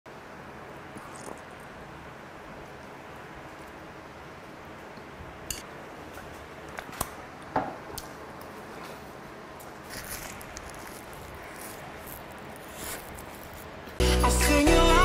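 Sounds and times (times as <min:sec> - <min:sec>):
steady background hiss: 0:00.1 - 0:15.0
man chewing food: 0:01.0 - 0:01.6, 0:09.8 - 0:13.8.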